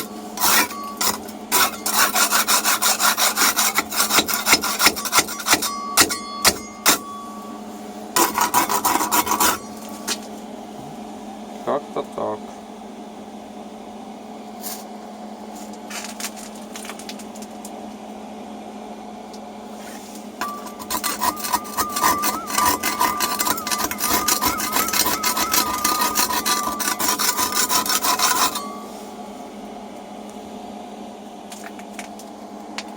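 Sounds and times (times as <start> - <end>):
metal scraping inside boiler: 0.0 - 10.3, 19.7 - 29.2
steady low hum: 0.0 - 32.9
metallic ringing: 0.4 - 1.8, 5.0 - 10.1, 20.4 - 29.0.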